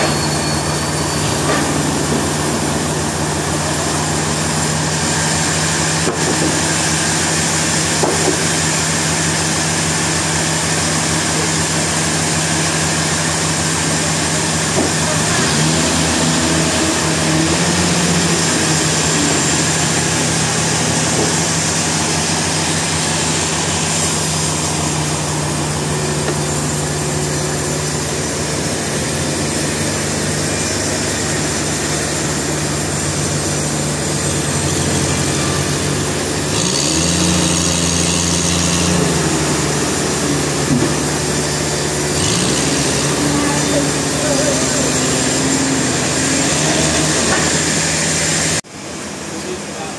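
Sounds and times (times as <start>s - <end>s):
sawmill machinery running: 0.0s - 49.9s.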